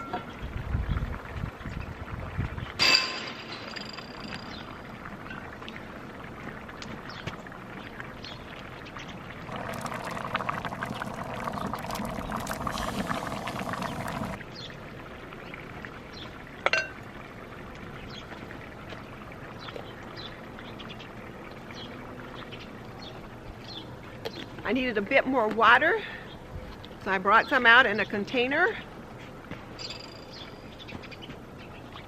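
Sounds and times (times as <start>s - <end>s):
soup simmering: 7.7s - 14.4s
water pouring into a pot: 9.4s - 14.4s.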